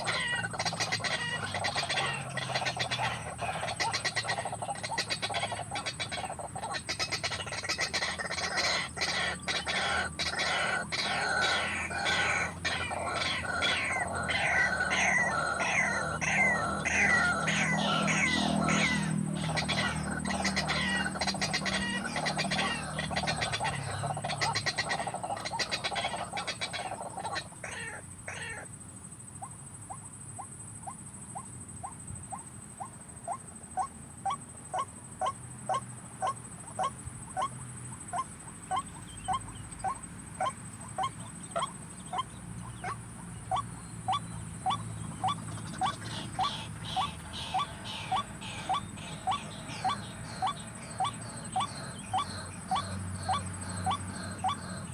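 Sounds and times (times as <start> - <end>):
waterhen croaking chorus: 0.0 - 54.9
repeated short kwak calls: 38.1 - 54.9.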